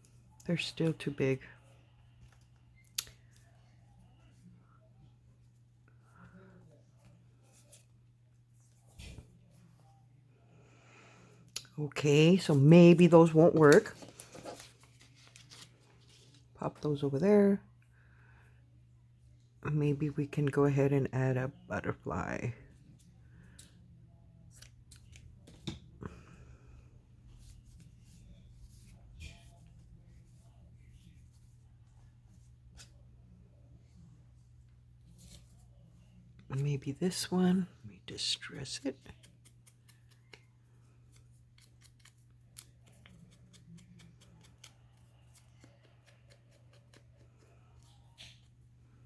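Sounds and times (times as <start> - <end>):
paper rustling: 12.3 - 16.5
scissors cutting paper: 41.1 - 48.4.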